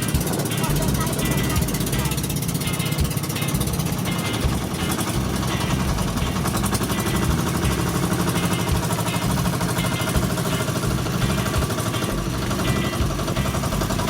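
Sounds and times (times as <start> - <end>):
boat engine chugging: 0.0 - 14.0.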